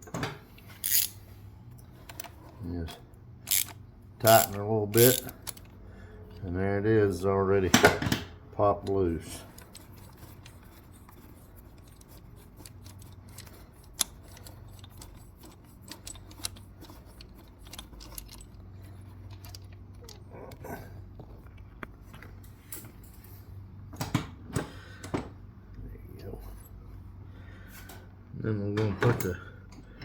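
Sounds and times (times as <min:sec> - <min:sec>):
metal tools clicking and clinking: 0:00.6 - 0:01.2, 0:02.0 - 0:05.8, 0:09.2 - 0:20.3.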